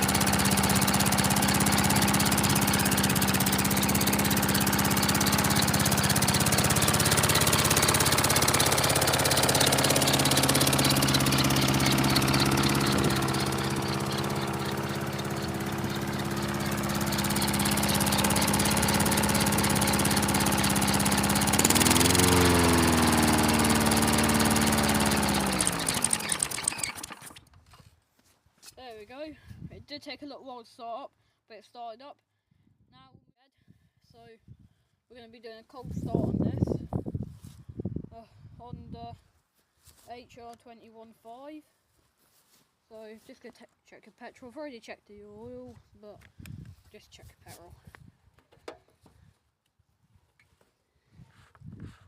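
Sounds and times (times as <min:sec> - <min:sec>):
lawnmower engine running: 0:00.0 - 0:27.7.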